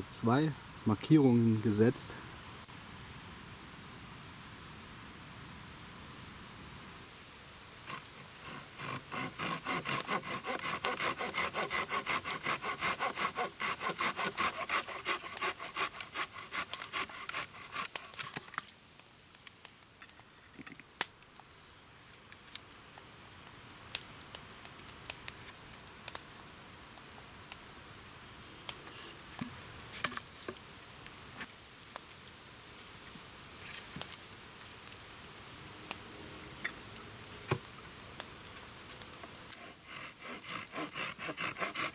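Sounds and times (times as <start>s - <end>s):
hand saw cutting wood: 7.9s - 18.4s, 39.5s - 41.9s
clicks and knocks handling wood: 28.8s - 30.6s.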